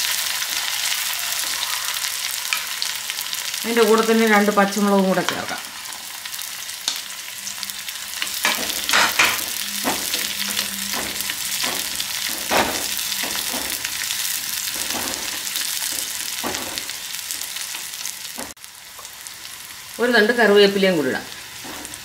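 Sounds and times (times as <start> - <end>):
shallots sizzling in hot oil: 0.0 - 22.0
spoon scraping and knocking pot: 8.2 - 14.0.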